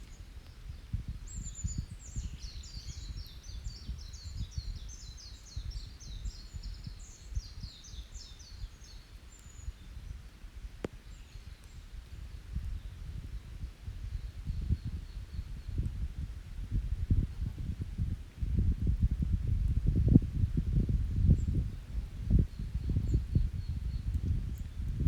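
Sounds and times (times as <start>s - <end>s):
campfire rumbling: 0.0s - 25.0s
fire crackle: 0.0s - 25.0s.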